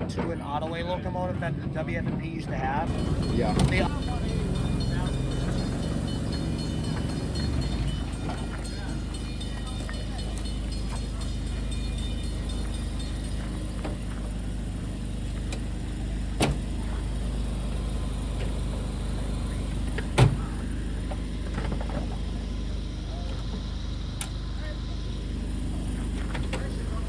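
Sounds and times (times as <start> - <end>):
low engine rumble: 0.0 - 27.0.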